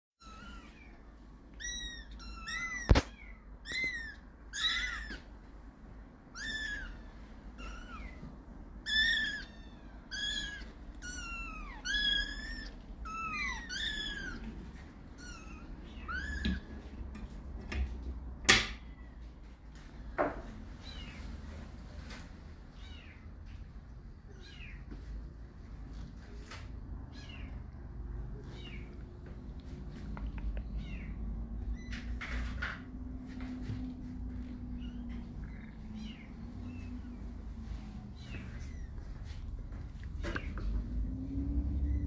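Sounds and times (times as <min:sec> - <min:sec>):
kittens mewing: 0:00.2 - 0:05.4, 0:06.2 - 0:17.1.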